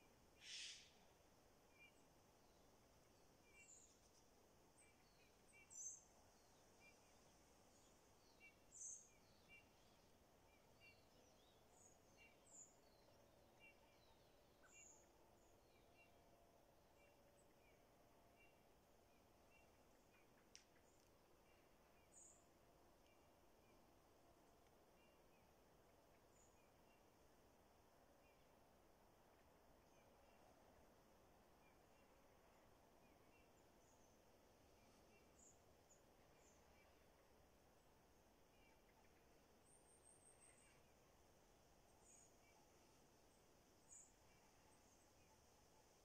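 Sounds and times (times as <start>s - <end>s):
faint high bird chirps: 0.0s - 2.1s, 4.8s - 16.2s, 38.4s - 41.2s.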